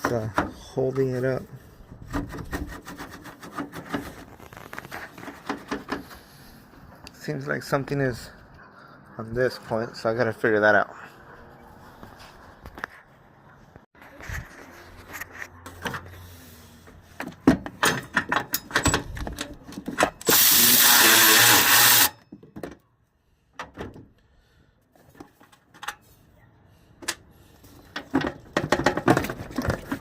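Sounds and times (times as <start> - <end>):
tools clicking and knocking: 17.2 - 20.4
power drill running: 20.3 - 22.1.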